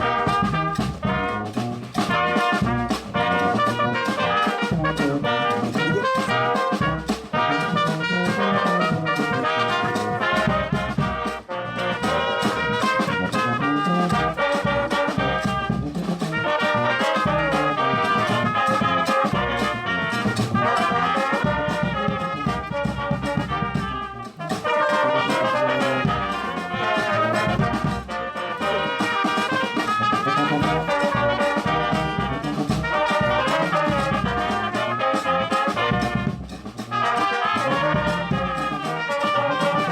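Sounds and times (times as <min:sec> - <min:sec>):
brass band playing: 0:00.0 - 0:39.9.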